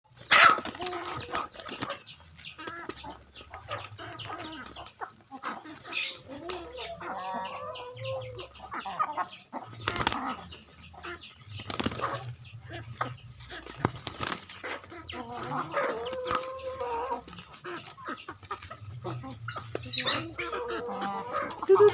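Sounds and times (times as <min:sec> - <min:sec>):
chickens clucking: 0:00.1 - 0:21.9
wings flapping: 0:09.7 - 0:10.4, 0:11.6 - 0:12.4, 0:13.5 - 0:20.0, 0:21.3 - 0:21.9.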